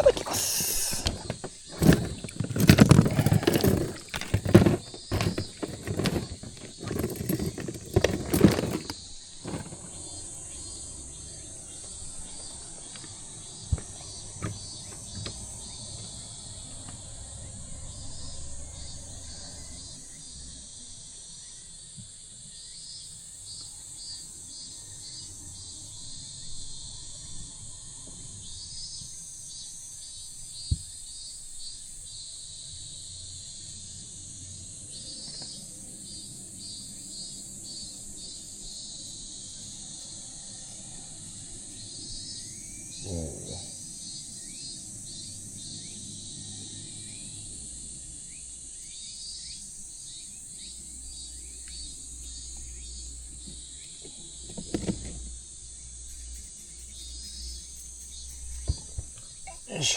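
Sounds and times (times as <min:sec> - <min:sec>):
rustling and knocking near microphone: 0:00.0 - 0:10.0, 0:53.4 - 0:55.4, 0:56.0 - 0:59.5
insects chirring: 0:00.0 - 0:59.9.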